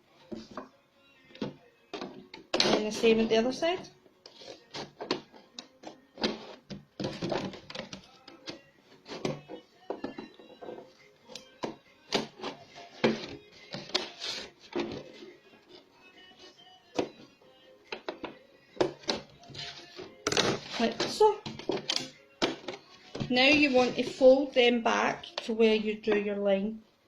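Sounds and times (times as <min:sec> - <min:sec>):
faint background music: 0:00.0 - 0:27.0.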